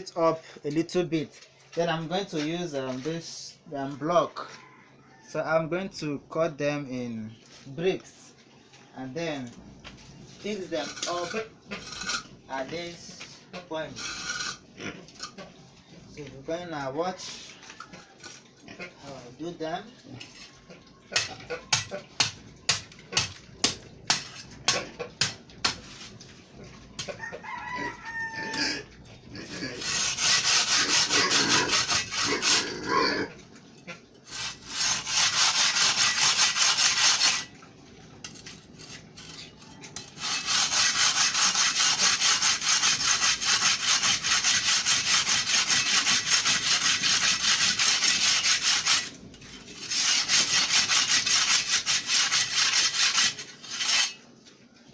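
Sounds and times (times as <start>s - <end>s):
rooster crowing: 4.4s - 5.4s, 27.0s - 29.0s
scraping strokes on concrete: 10.4s - 15.5s, 17.2s - 27.2s, 29.4s - 32.8s, 34.3s - 37.5s, 38.2s - 54.2s.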